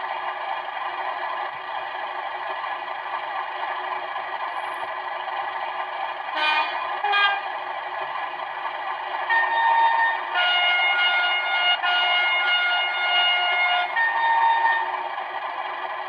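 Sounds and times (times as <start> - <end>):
diesel engine idling through small speaker: 0.0 - 16.0
two-tone horn blast: 6.4 - 7.5, 9.3 - 14.9.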